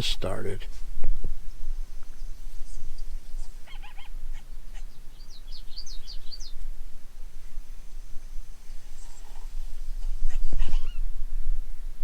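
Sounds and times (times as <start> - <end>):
distant coyotes yipping and howling: 1.8 - 6.6, 8.0 - 11.2.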